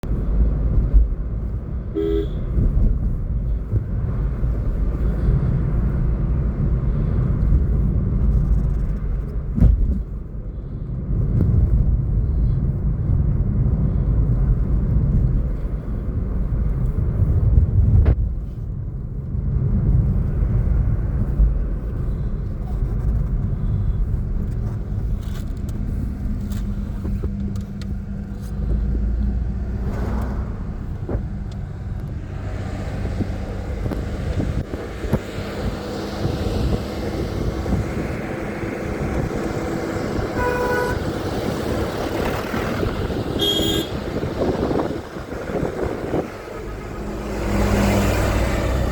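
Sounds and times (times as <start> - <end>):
car engine and road rumble: 0.0 - 48.9
car horn toot: 1.9 - 2.6, 40.3 - 41.1, 43.3 - 44.3.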